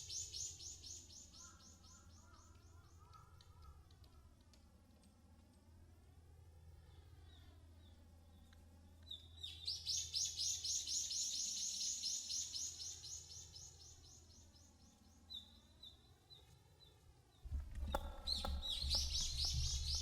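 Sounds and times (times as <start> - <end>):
woodpecker calling: 0.0 - 4.4, 17.8 - 20.0.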